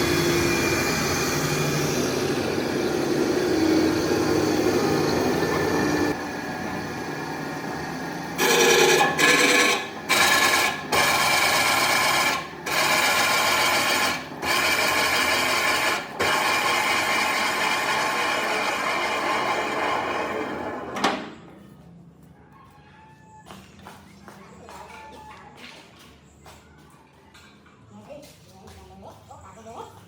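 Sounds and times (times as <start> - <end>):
sawmill running: 0.0 - 21.4
saw rasping through wood: 8.4 - 20.5.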